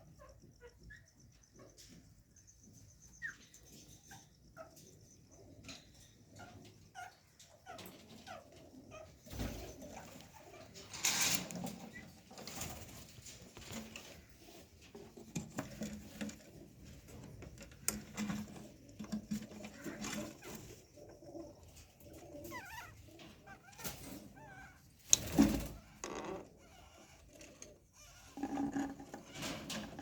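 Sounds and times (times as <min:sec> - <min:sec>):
bird chirps: 0:00.1 - 0:05.5
birds cooing: 0:03.1 - 0:12.8, 0:16.5 - 0:26.0.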